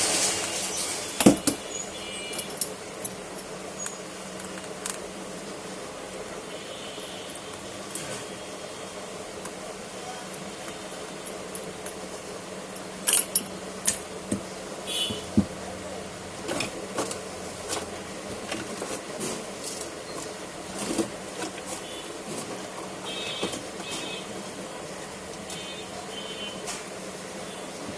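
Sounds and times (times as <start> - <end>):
tools and parts clicking: 2.3 - 5.0, 13.0 - 14.0.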